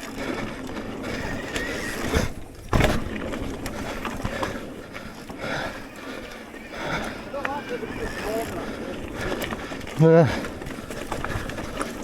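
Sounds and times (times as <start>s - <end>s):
bike rattling and clicking: 0.0s - 12.0s
bike tyre rumble on trail: 0.0s - 12.0s
loud bike clunk: 2.6s - 3.3s.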